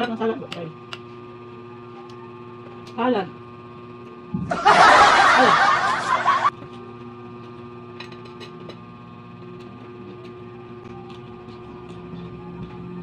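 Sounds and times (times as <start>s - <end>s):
steady hum: 4.4s - 6.5s.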